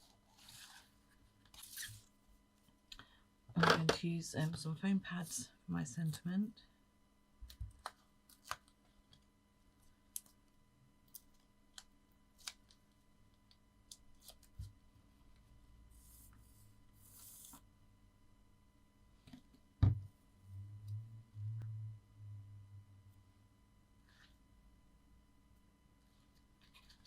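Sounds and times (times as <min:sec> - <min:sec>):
faint electrical hum: 0:00.0 - 0:27.0
paper rustling: 0:26.2 - 0:27.0.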